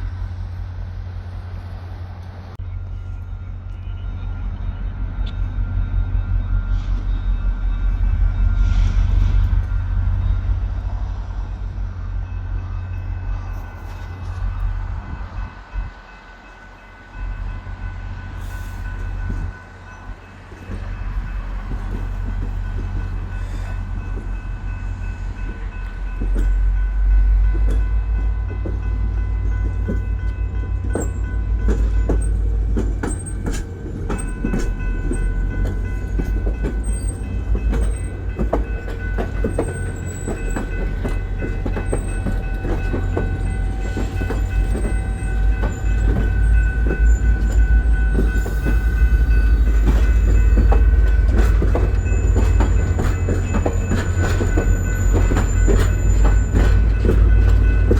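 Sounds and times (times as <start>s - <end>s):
diesel locomotive rumble: 0.0s - 57.9s.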